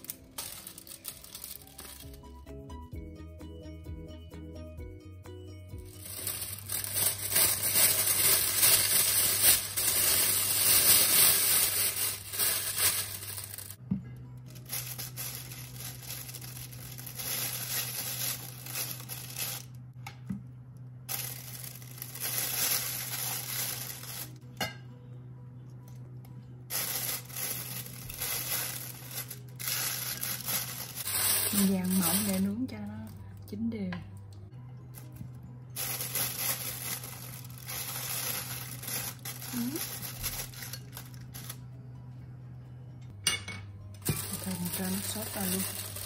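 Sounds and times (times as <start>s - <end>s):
plastic bag crinkling: 0.0s - 2.2s, 5.9s - 13.8s, 14.5s - 19.8s, 21.1s - 24.4s, 26.7s - 32.7s, 35.8s - 41.6s, 44.1s - 46.0s
soft background music: 0.0s - 46.0s.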